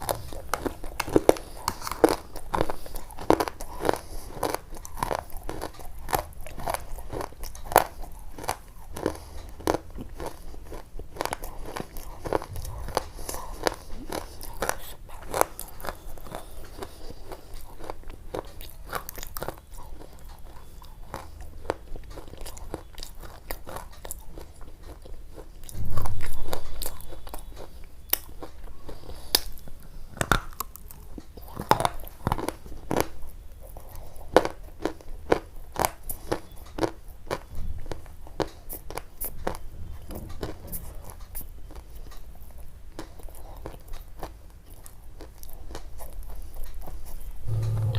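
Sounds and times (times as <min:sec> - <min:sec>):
close-up crunching with clicks: 0:00.0 - 0:47.3
low thump: 0:47.5 - 0:47.9.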